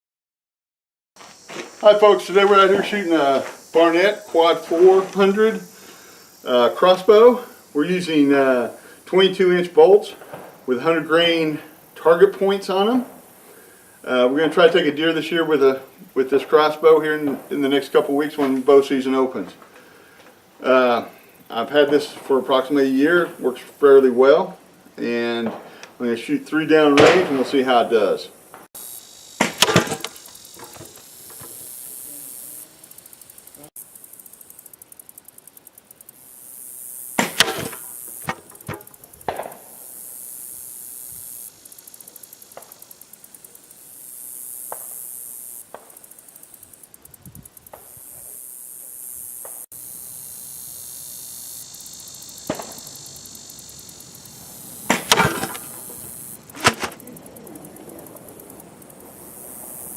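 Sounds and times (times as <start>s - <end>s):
insect chirring: 1.2s - 59.9s
crossbow shot crack: 27.0s - 27.6s, 29.4s - 31.7s, 37.1s - 39.9s, 52.4s - 53.0s, 54.7s - 57.1s
sharp knocks: 29.4s - 31.6s, 37.2s - 39.6s, 54.9s - 57.0s.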